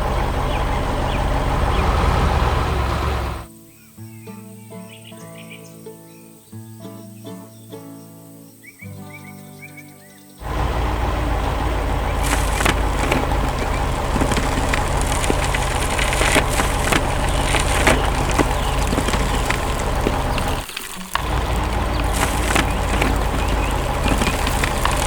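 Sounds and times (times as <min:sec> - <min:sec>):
excavator engine running: 0:00.0 - 0:03.5, 0:10.4 - 0:25.0
trees cracking: 0:00.0 - 0:03.5, 0:10.4 - 0:25.0
wood splintering and snapping: 0:10.5 - 0:25.0.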